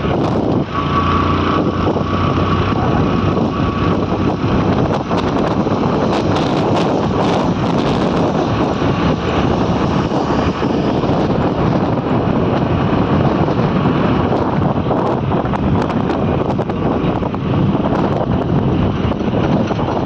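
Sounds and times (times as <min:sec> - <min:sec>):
vehicle and road rumble: 0:00.0 - 0:20.0
wind rushing over microphone: 0:00.0 - 0:20.0.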